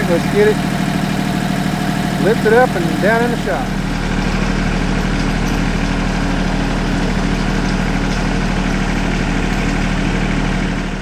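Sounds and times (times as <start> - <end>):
vehicle engine idling: 0.0 - 5.0.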